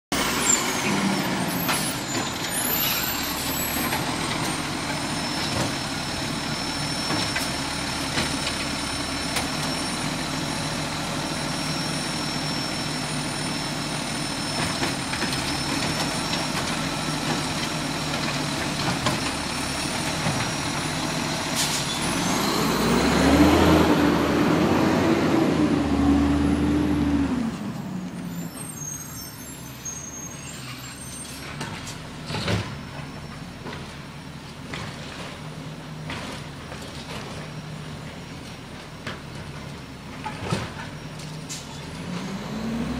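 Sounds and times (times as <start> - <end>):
garbage truck engine whine: 0.2 - 42.9
engine revving: 22.0 - 27.6, 42.0 - 42.9.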